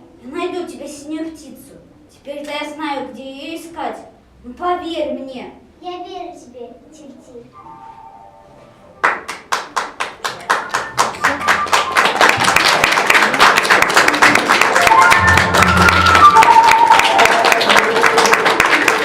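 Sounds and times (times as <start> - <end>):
music: 7.5 - 9.6, 10.4 - 19.0
audience applause: 9.0 - 19.0.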